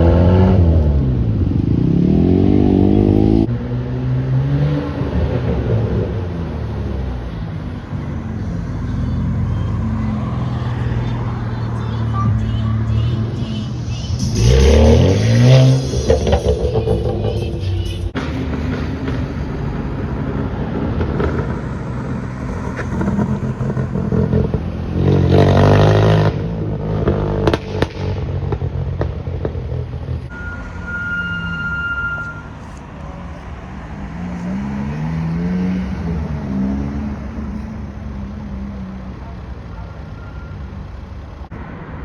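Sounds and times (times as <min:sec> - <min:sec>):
car engines revving: 0:00.0 - 0:42.0
short high steady tone: 0:30.3 - 0:32.6.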